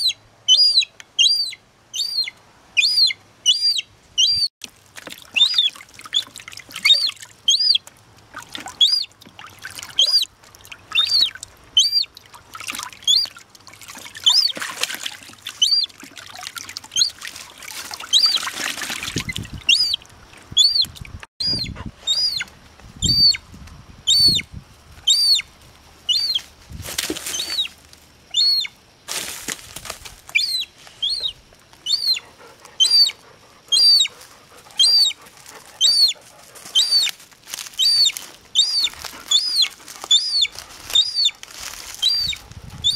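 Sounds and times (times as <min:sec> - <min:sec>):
gull chick peeping: 0:00.0 - 0:04.5, 0:05.3 - 0:07.9, 0:08.7 - 0:09.1, 0:09.9 - 0:10.3, 0:10.9 - 0:12.1, 0:13.0 - 0:13.4, 0:19.2 - 0:23.4, 0:24.1 - 0:24.4, 0:25.0 - 0:25.5, 0:26.1 - 0:26.4, 0:28.3 - 0:28.7, 0:30.3 - 0:34.2, 0:34.8 - 0:35.2, 0:35.8 - 0:37.1, 0:37.8 - 0:41.4, 0:42.0 - 0:42.9.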